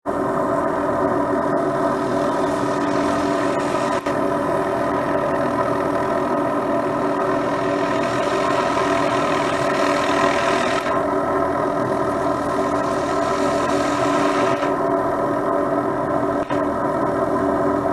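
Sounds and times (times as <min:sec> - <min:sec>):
helicopter turbine whine: 0:00.0 - 0:17.9.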